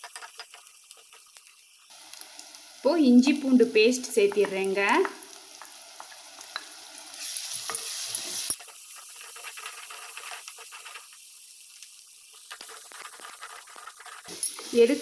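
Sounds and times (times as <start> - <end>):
food sizzling in oil: 0.0 - 15.0
wooden spatula scraping pot: 7.6 - 11.1, 12.4 - 14.9.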